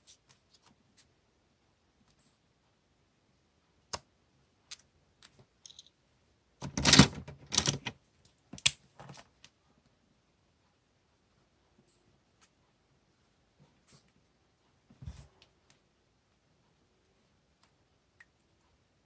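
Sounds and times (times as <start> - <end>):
stationery rustling: 6.6 - 9.6.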